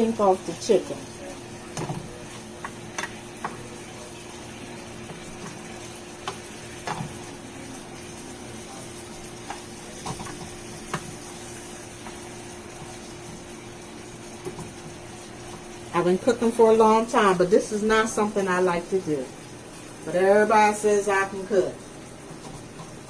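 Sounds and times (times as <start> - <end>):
chicken sizzling in hot oil: 0.0 - 23.0
utensil clicking against pan: 2.6 - 3.6.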